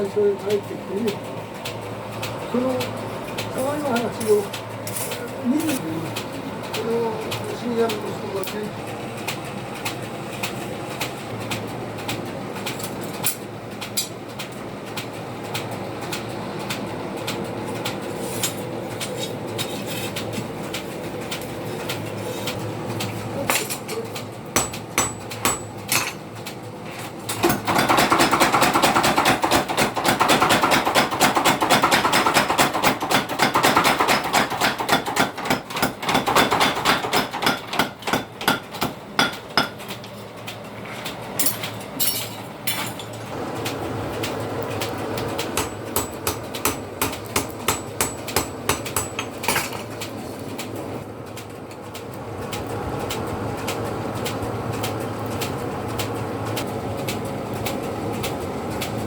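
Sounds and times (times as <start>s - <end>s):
hammer striking metal: 24.6s - 26.2s, 27.4s - 39.8s, 45.6s - 49.8s.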